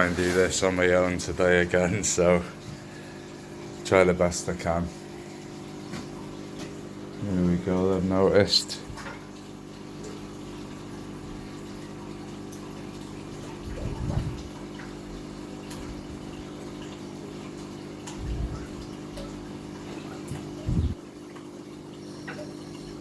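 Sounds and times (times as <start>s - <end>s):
filter pump humming: 0.0s - 23.0s
water running: 0.0s - 23.0s
short low thumps: 13.7s - 14.6s, 18.2s - 18.9s.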